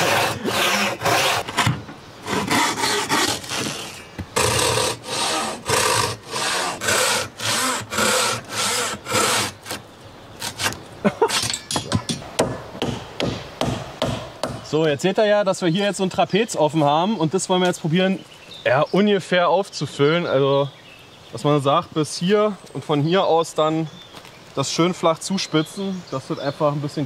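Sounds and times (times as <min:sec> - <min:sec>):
hand saw cutting logs: 0:00.0 - 0:09.8, 0:10.4 - 0:11.6
sharp knocks: 0:11.3 - 0:14.7.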